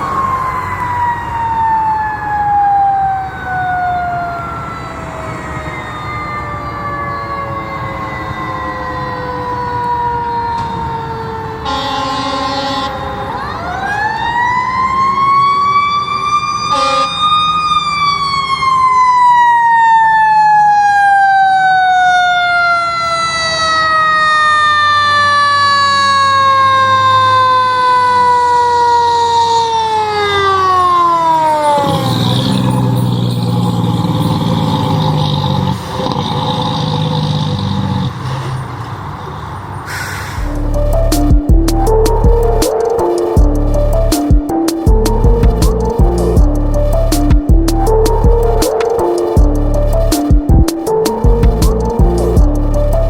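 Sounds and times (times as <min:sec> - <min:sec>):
siren blast: 0:00.0 - 0:35.2, 0:40.4 - 0:53.0
truck engine running: 0:31.8 - 0:38.1, 0:40.4 - 0:53.0.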